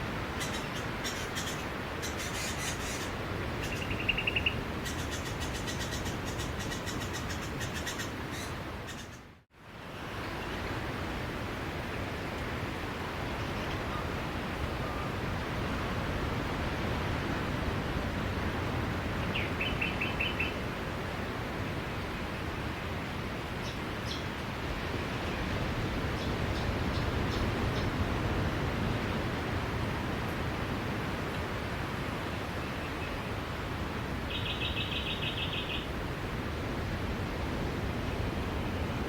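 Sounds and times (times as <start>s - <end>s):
sea waves on a beach: 9.5s - 34.4s.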